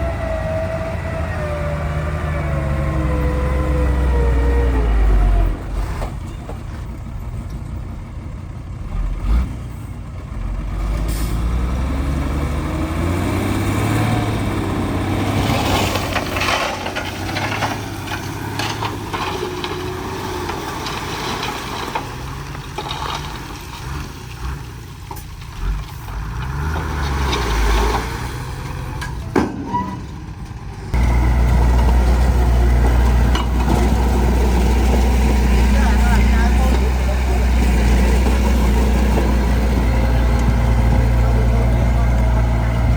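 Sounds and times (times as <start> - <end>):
heavy diesel machinery running: 28.3 - 42.9.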